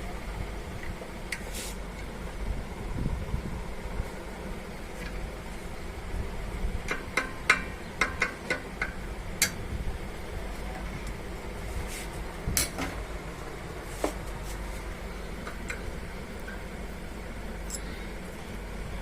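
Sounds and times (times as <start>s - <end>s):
small tools clicking and knocking: 17.6s - 18.0s.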